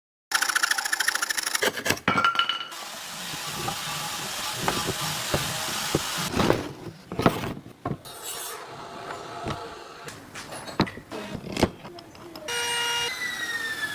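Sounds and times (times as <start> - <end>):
scraping wood: 1.1 - 13.9
rasping strokes on wood: 2.8 - 13.9
knocks and clicks: 3.4 - 8.1, 9.1 - 12.5
brief squeal: 12.5 - 13.9.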